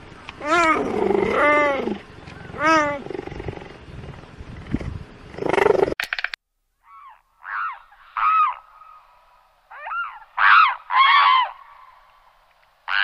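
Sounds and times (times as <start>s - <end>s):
geese honking: 9.9s - 11.9s.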